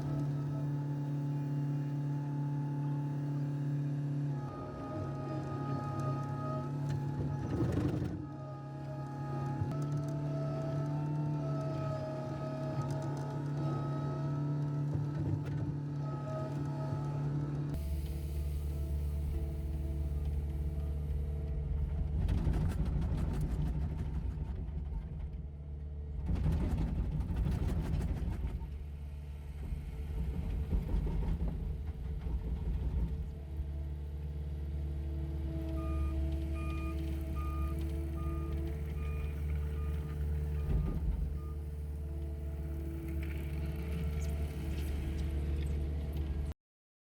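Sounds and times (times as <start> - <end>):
diesel engines running: 0.0 - 46.5
reversing alarm beeping: 35.6 - 41.8.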